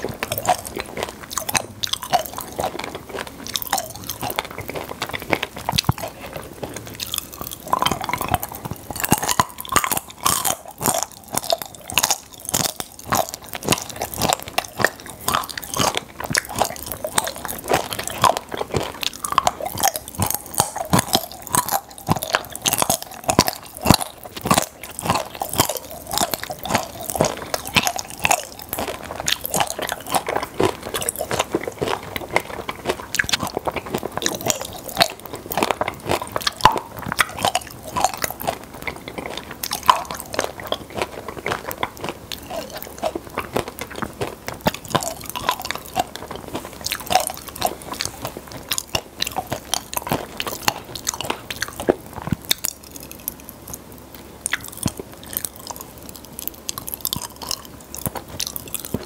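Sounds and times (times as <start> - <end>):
popping candy crackling while chewed: 0.0 - 59.0.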